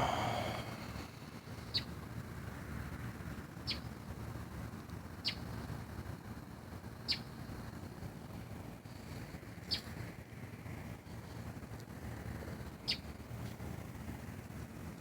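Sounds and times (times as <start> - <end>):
steady low rumble: 0.0 - 1.2.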